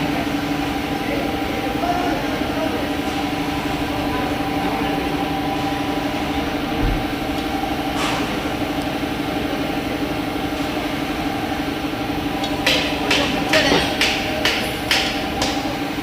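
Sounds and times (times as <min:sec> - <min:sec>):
car engine idling: 0:00.0 - 0:16.0
low thump: 0:06.8 - 0:07.2.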